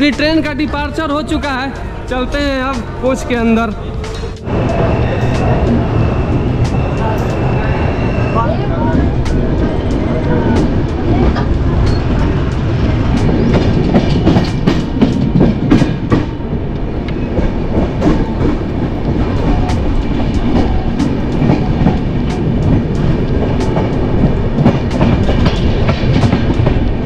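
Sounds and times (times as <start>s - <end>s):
train wheels rumbling on rails: 0.0s - 27.0s
wheels clacking over rail joints: 8.9s - 27.0s.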